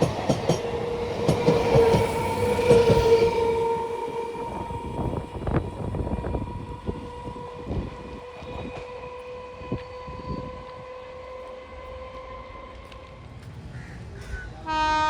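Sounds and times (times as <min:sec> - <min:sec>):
train wheels knocking over rail joints: 0:00.0 - 0:03.4.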